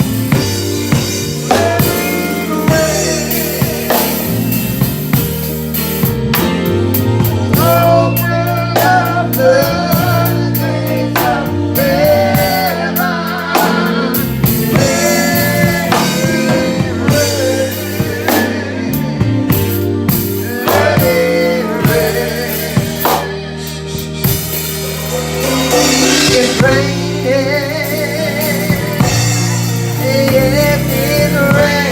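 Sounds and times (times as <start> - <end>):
drum kit steady beat: 0.0 - 31.9
sustained low chords: 0.0 - 31.9
wavering melody line: 20.0 - 30.8.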